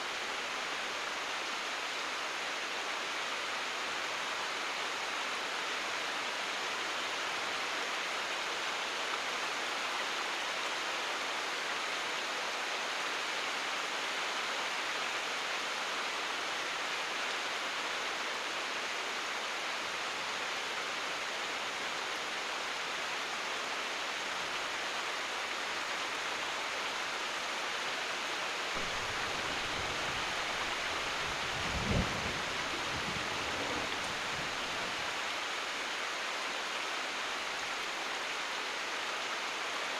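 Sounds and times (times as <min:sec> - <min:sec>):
heavy rain: 0:00.0 - 0:39.9
distant thunder rumble: 0:28.8 - 0:34.9.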